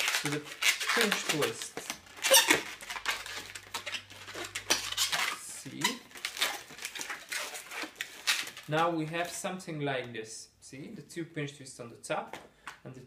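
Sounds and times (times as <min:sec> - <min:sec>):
balloon squeaking and rubbing: 0:00.0 - 0:09.4.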